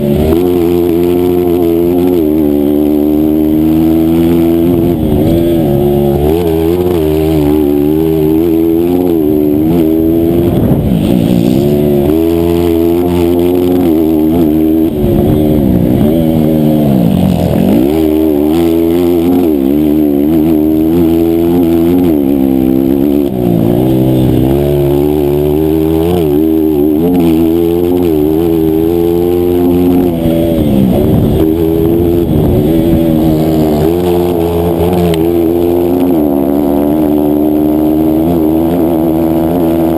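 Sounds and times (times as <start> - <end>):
racing motorcycle engine revving: 0.0 - 39.9.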